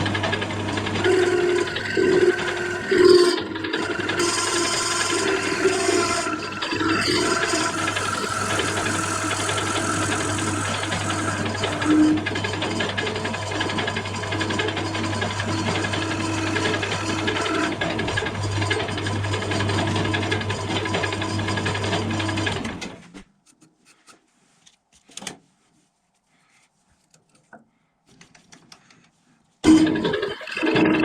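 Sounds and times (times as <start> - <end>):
power tool motor hum: 1.0 - 12.3
wood rasping: 1.0 - 17.8.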